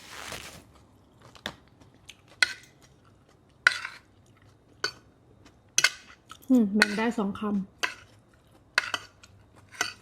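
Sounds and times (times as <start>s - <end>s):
utensils clinking on a plate: 8.8s - 10.0s.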